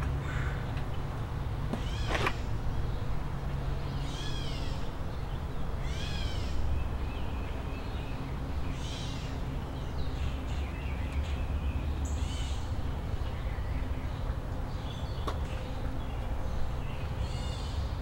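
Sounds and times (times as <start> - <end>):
bird calling: 1.7 - 2.6.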